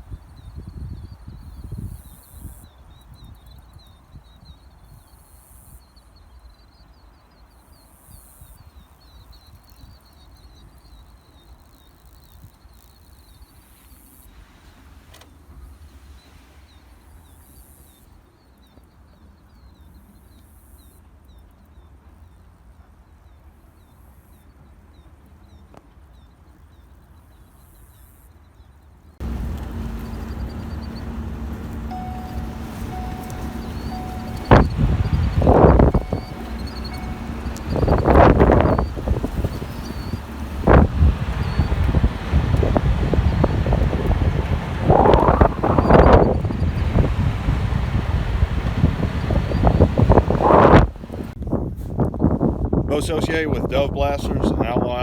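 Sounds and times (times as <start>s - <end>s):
small high chirps: 29.2s - 43.9s
high hiss: 29.2s - 46.2s
steady low rumble: 29.2s - 51.4s.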